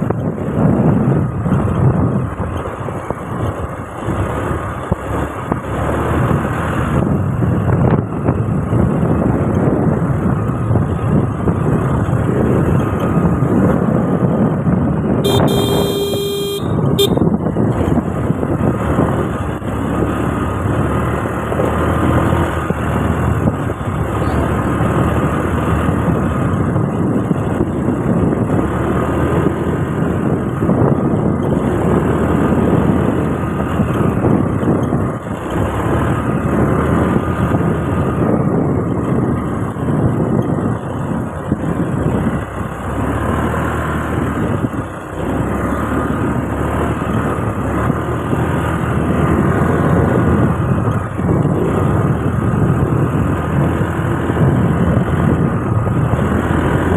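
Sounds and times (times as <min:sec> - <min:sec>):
motorcycle engine riding: 0:00.0 - 0:56.9
vehicle horn honking: 0:15.2 - 0:17.3.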